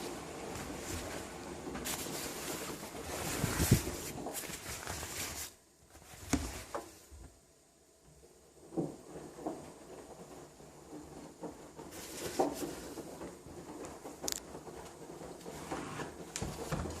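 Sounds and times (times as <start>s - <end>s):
water and laundry sloshing: 0.0s - 7.2s
washing machine tumbling: 0.0s - 17.0s.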